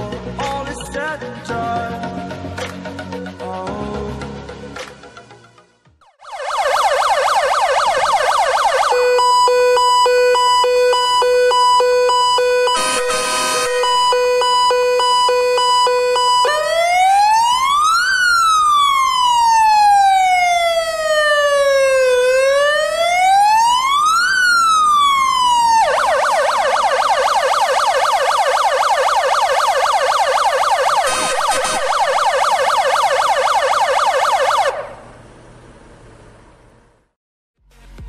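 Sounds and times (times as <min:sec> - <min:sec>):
electronic fire engine siren: 0:06.0 - 0:35.3.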